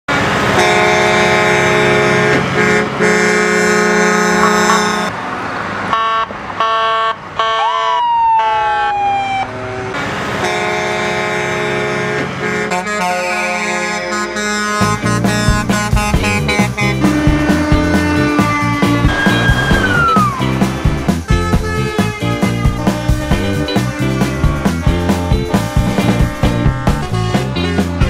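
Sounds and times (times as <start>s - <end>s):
truck air horn blasts: 0.5s - 5.2s, 5.9s - 8.6s, 10.4s - 20.6s
siren sliding down in pitch: 7.5s - 10.0s, 18.4s - 20.6s.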